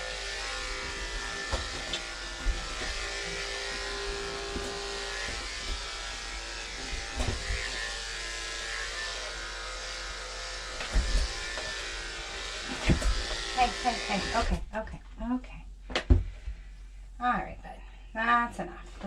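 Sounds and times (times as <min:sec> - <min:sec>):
electric clippers buzzing: 0:00.0 - 0:14.6.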